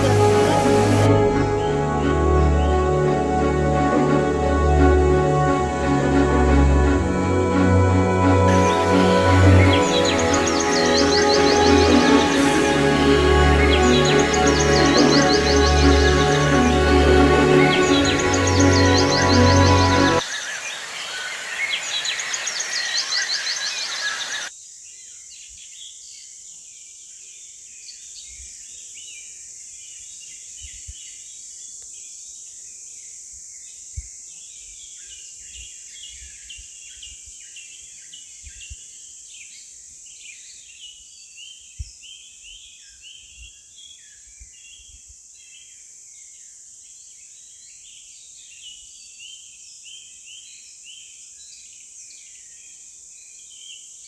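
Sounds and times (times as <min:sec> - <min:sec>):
birds chirping: 0:00.0 - 0:07.8, 0:08.4 - 0:24.5.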